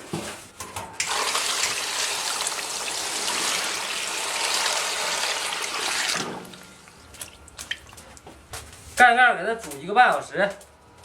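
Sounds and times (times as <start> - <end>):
water pouring into a pot: 1.0 - 6.8.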